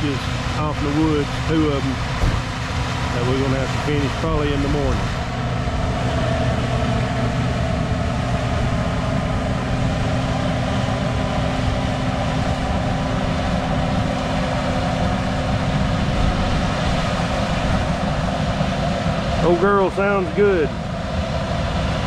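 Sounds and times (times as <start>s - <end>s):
diesel engine humming: 0.0s - 22.0s.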